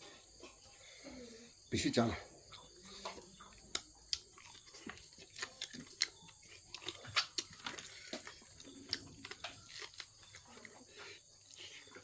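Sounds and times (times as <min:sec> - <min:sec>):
wet mouth chewing clicks: 0:03.0 - 0:10.5.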